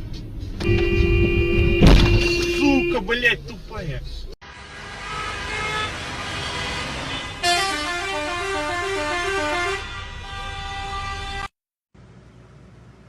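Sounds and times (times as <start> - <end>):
road noise: 0.0 - 13.0
vehicle horn: 0.6 - 3.1, 4.4 - 11.5.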